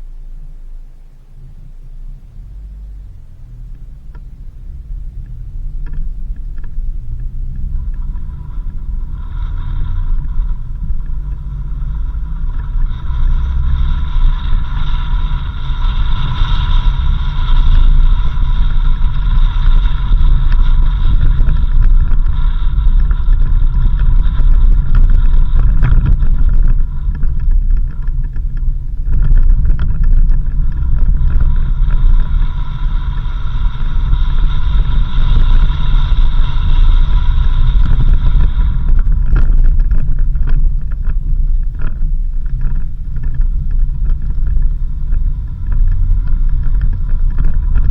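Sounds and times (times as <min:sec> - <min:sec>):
vehicle driving on dirt road: 0:00.0 - 0:47.9.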